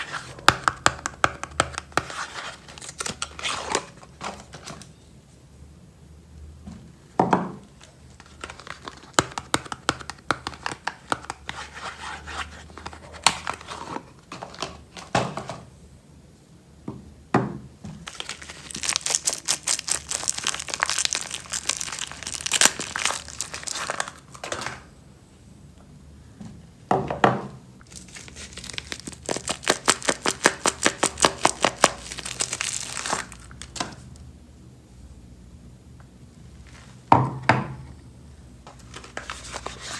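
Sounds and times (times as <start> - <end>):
packaging crinkling and tearing: 8.2 - 9.4, 18.1 - 24.6, 27.8 - 33.8.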